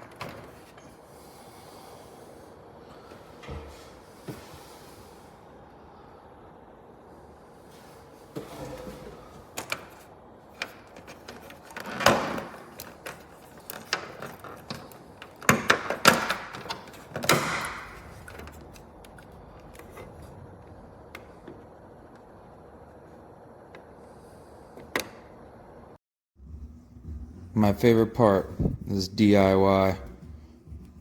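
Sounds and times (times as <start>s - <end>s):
objects knocking and clicking: 10.6s - 19.9s.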